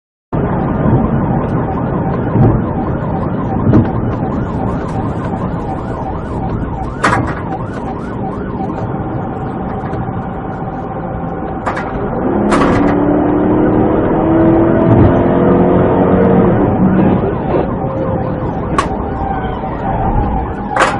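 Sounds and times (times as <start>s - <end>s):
vehicle and road noise: 0.3s - 20.9s
police siren: 0.4s - 20.9s
sharp clicks or knocks: 11.6s - 13.2s.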